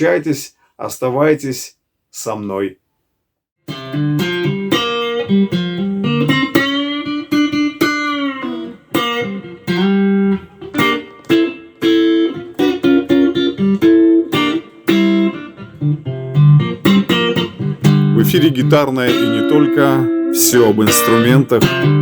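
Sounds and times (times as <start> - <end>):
electric guitar melody: 3.6 - 22.0.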